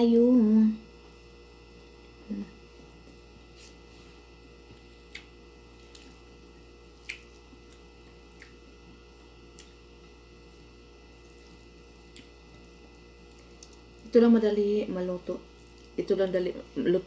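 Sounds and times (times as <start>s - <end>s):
faint steady hum: 0.0s - 17.0s
wet mouth clicks and smacks: 5.1s - 6.2s, 7.0s - 8.6s.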